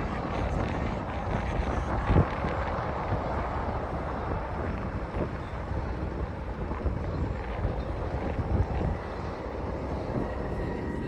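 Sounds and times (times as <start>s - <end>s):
jet aircraft rumble: 0.0s - 11.0s
wind buffeting microphone: 0.0s - 11.0s.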